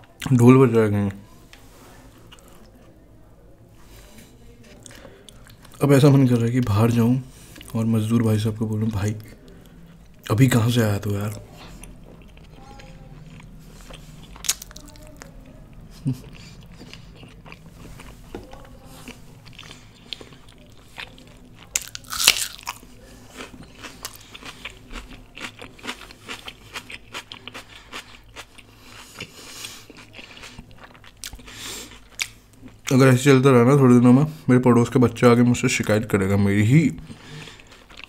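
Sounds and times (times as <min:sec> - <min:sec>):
person chewing: 0:02.3 - 0:02.7, 0:04.7 - 0:05.8, 0:11.2 - 0:32.9, 0:37.0 - 0:38.0
loud crunching bite: 0:13.4 - 0:15.0, 0:21.6 - 0:22.8.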